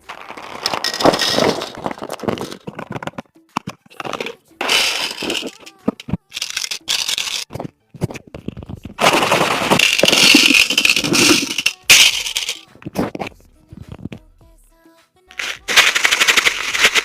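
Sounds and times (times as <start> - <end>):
plastic wrappers crinkling and tearing: 0.0 - 3.2, 15.4 - 17.0
dense rustling of wrappers: 15.4 - 17.0.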